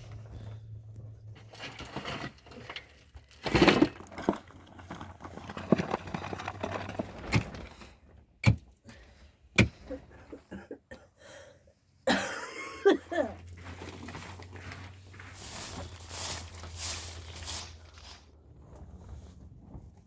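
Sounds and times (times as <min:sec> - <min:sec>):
rustling crash: 0:13.7 - 0:18.3.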